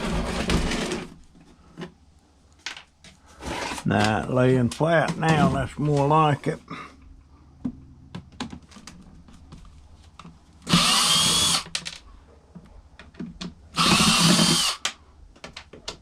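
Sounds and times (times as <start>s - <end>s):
cordless screw gun running: 10.7s - 11.7s, 13.8s - 14.8s.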